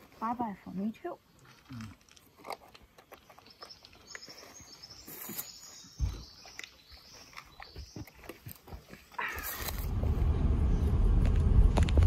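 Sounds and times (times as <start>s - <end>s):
birds chirping: 2.7s - 11.1s.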